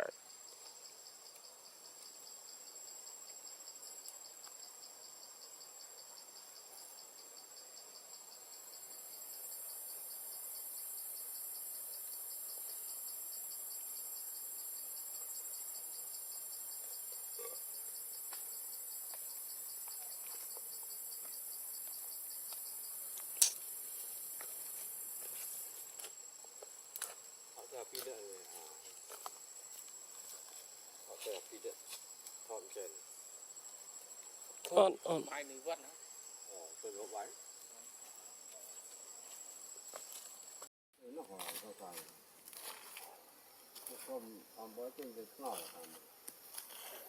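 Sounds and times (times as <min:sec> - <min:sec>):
insect fast pulsing buzz: 0:00.0 - 0:47.0
insect high hiss: 0:00.0 - 0:47.0
sharp click: 0:23.4 - 0:23.6.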